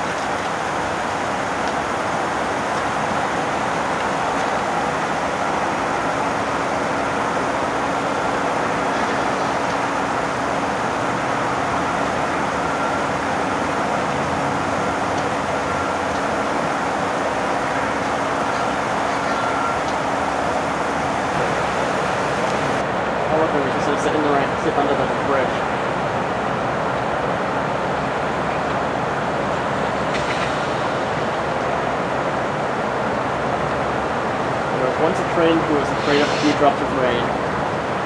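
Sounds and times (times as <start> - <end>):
passenger train pulling away: 0.0 - 23.7, 34.0 - 38.0.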